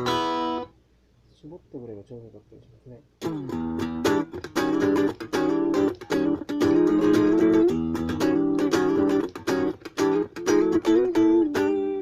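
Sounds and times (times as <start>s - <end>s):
electric guitar strummed chords: 3.2s - 12.0s.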